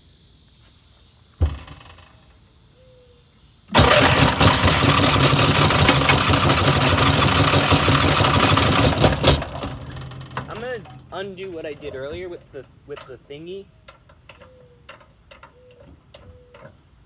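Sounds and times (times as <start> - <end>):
lawn mower engine starting: 3.7 - 13.3.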